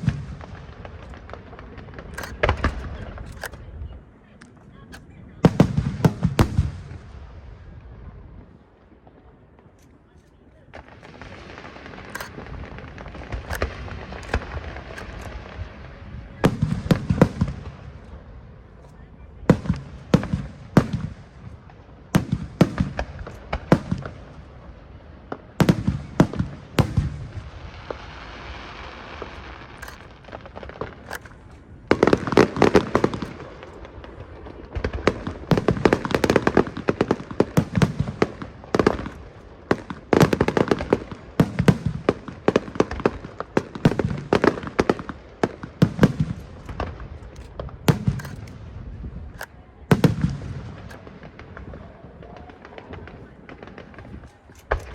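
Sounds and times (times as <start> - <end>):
fireworks bursting: 0.0 - 7.4, 9.9 - 54.9.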